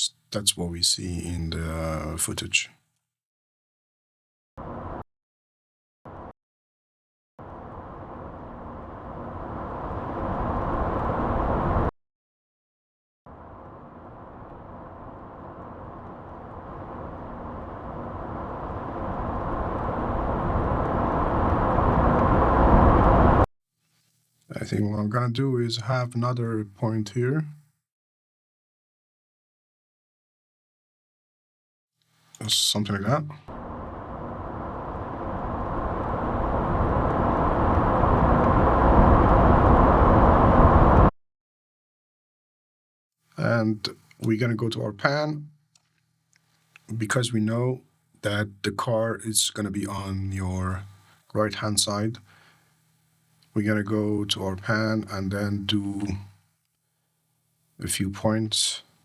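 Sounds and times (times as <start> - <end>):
vehicle engine drone: 4.6 - 5.0, 7.4 - 11.9, 13.3 - 23.5, 33.5 - 41.1.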